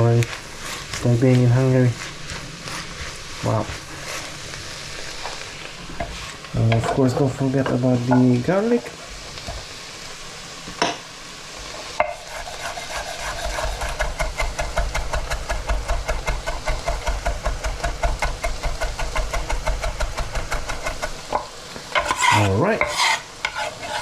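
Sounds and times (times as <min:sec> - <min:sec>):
faint frying sizzle: 0:00.0 - 0:24.0
knife chopping on cutting board: 0:12.4 - 0:21.2.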